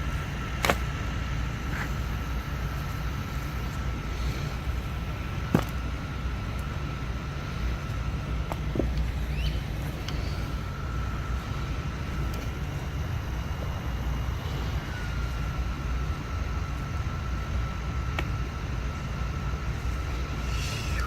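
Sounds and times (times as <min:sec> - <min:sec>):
low outdoor rumble: 0:00.0 - 0:21.0
faint high-pitched whine: 0:09.0 - 0:21.0.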